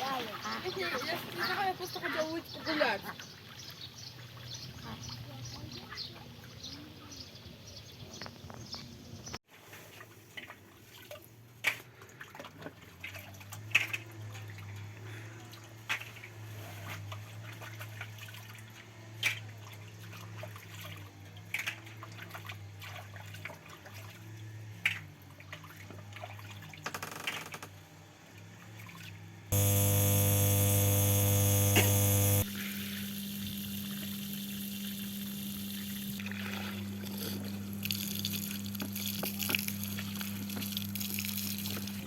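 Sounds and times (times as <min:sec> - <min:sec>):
low hum: 0:29.5 - 0:32.5
water dripping and splashing: 0:37.7 - 0:42.0.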